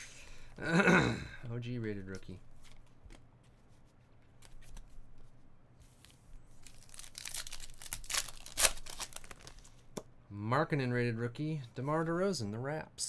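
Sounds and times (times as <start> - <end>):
foil wrapper tearing and crinkling: 6.6 - 9.6.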